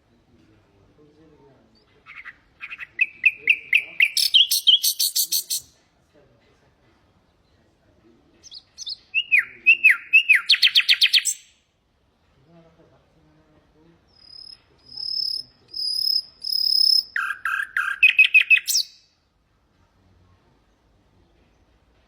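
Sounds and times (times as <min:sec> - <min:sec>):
nightingale singing: 0:01.7 - 0:05.8, 0:08.4 - 0:11.6, 0:14.1 - 0:19.2.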